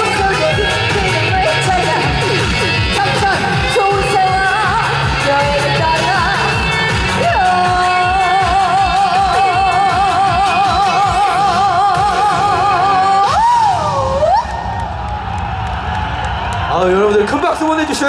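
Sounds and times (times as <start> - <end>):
backing track with a beat: 0.0 - 13.5
woman singing with vibrato: 0.0 - 14.5.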